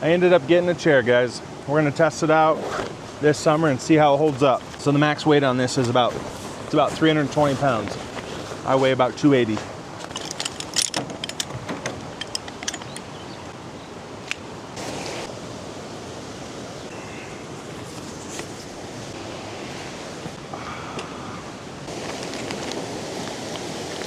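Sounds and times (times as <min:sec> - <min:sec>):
clicks and rustling: 0:09.5 - 0:13.1.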